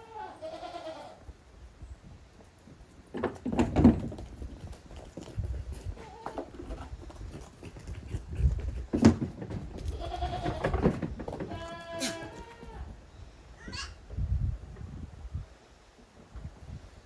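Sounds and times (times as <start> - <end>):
goat kids bleating: 0.0 - 1.3, 6.0 - 6.6, 9.8 - 13.0, 13.6 - 14.0.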